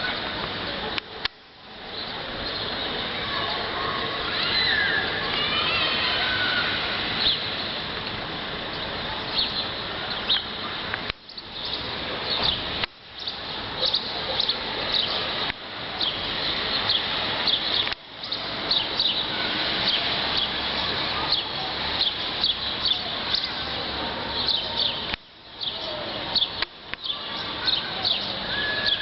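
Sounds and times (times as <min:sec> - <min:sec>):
outdoor background noise: 0:00.0 - 0:29.0
small birds chirping: 0:01.8 - 0:29.0.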